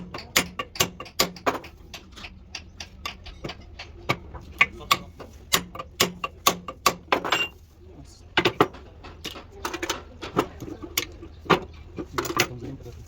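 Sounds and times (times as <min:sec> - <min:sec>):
metal tools clinking: 0:07.1 - 0:07.6, 0:11.6 - 0:13.0.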